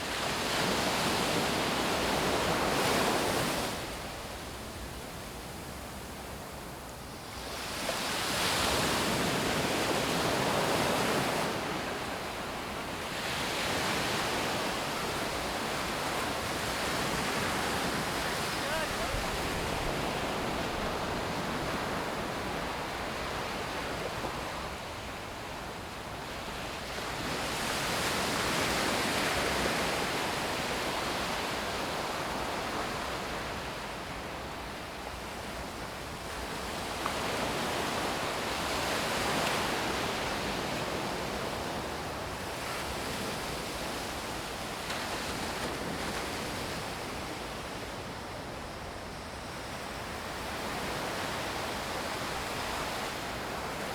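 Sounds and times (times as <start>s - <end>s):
sea surf washing onto beach: 7.5s - 25.6s.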